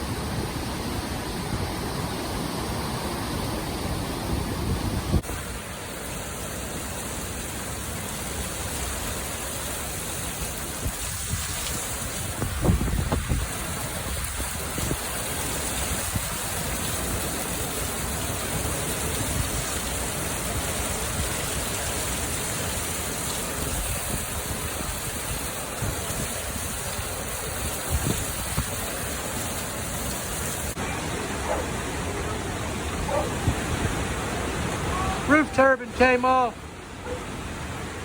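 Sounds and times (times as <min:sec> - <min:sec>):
wind gusts buffeting microphone: 0:00.0 - 0:05.4, 0:10.4 - 0:17.4, 0:23.6 - 0:29.5, 0:30.4 - 0:35.3
heavy rain: 0:00.0 - 0:38.0.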